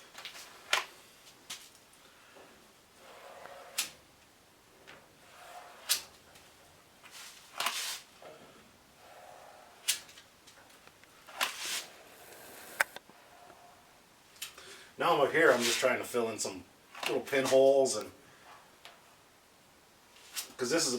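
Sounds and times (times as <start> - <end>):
plastic spreader scraping metal: 3.0 - 4.0, 5.2 - 6.5.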